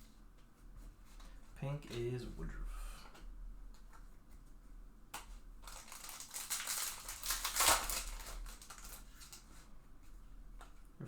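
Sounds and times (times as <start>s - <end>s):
foil wrapper crinkling: 5.6s - 9.7s.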